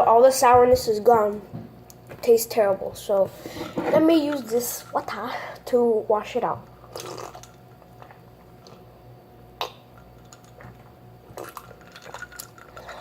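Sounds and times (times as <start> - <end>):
person swallowing water: 6.9 - 8.8.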